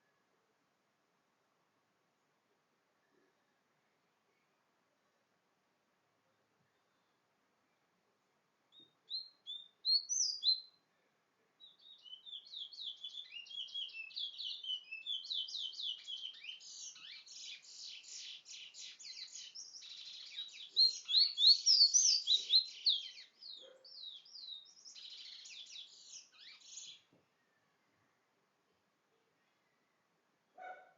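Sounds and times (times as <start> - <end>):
songbird chirps: 0.0 - 30.9
songbird warbling song: 8.7 - 28.4.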